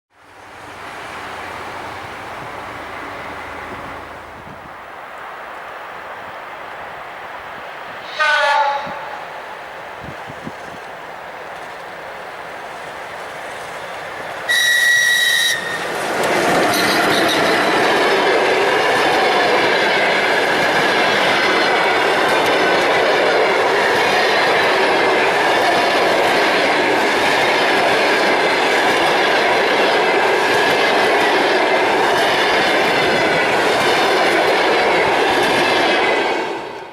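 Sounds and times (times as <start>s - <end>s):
train rushing past: 0.2s - 36.9s
locomotive horn blast: 8.0s - 9.2s, 14.5s - 15.9s.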